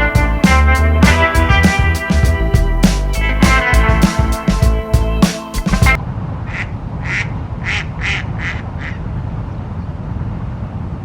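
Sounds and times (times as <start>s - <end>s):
music: 0.0s - 6.0s
duck quacking: 6.5s - 9.0s.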